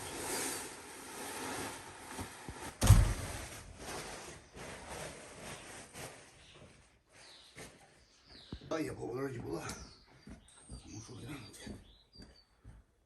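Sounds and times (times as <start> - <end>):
rustling and scraping handling: 0.0 - 8.6
heavy thump: 2.8 - 3.4.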